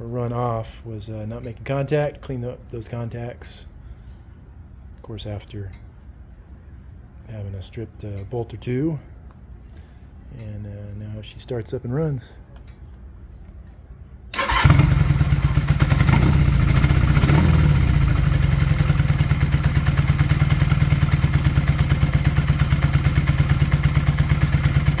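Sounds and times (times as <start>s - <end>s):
motorcycle engine starting and idling: 14.3s - 25.0s
engine revving: 14.4s - 25.0s.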